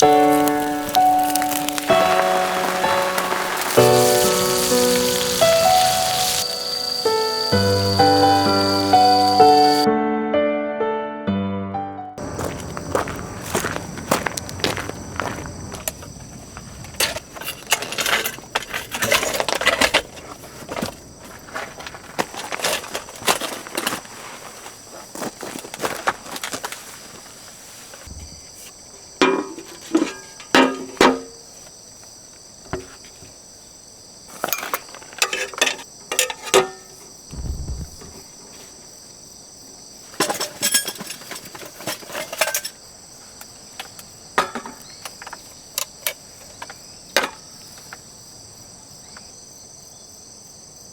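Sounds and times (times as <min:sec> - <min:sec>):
camp gear knocking and rustling: 0:00.0 - 0:06.5, 0:12.2 - 0:31.6, 0:40.1 - 0:48.0
insects chirping: 0:00.0 - 0:09.9, 0:12.2 - 0:50.9.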